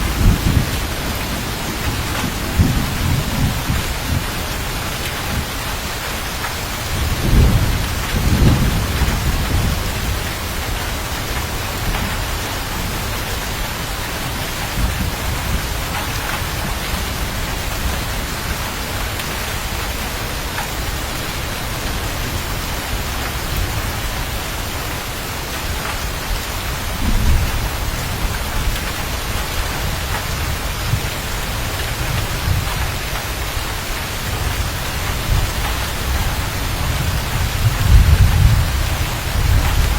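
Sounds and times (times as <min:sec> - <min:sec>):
rolling thunder: 0:00.0 - 0:05.6, 0:06.8 - 0:19.6, 0:26.3 - 0:33.6, 0:34.3 - 0:39.9
heavy rain hissing: 0:00.0 - 0:39.9.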